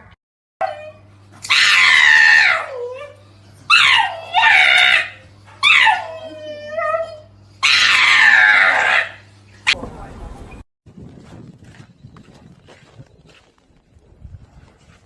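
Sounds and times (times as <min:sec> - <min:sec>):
low steady hum: 0:00.6 - 0:10.6
animal screaming calls: 0:01.5 - 0:02.8, 0:03.7 - 0:06.2, 0:07.6 - 0:09.2.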